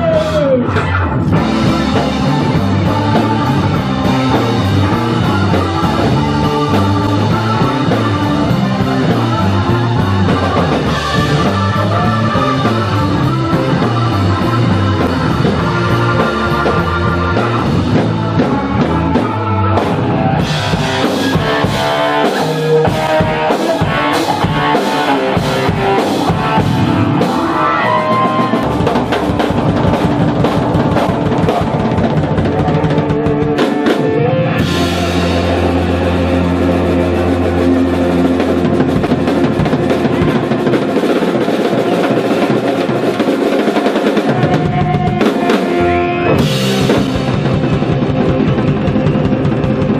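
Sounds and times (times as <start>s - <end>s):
electric guitar: 0.0s - 49.9s
drum kit and cymbals: 1.3s - 49.9s.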